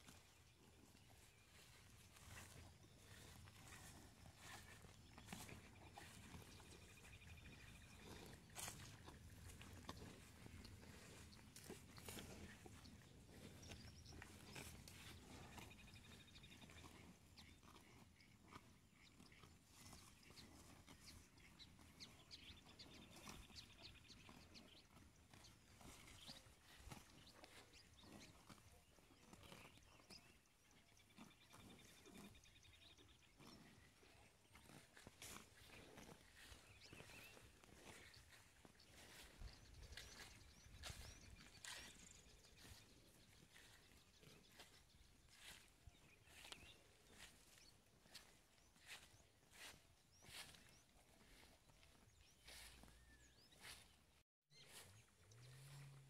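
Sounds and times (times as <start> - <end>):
footsteps crunching on dry ground: 0.0 - 17.6, 22.4 - 56.0
faint birds chirping: 0.0 - 56.0
faint bird chirps: 52.1 - 56.0.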